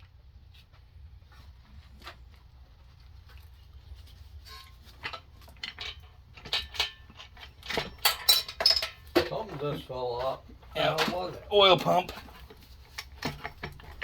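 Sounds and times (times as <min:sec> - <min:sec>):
metallic clinks of tools: 0:05.7 - 0:09.1.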